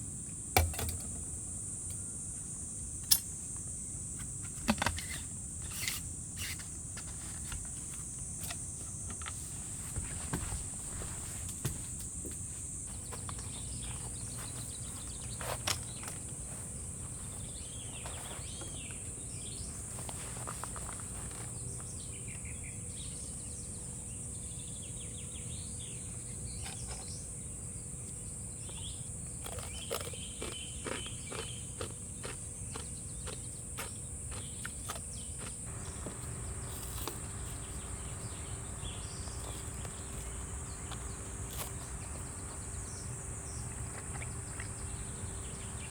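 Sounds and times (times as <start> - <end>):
insects droning: 0.0 - 45.9
faint bird chirps: 35.7 - 45.9.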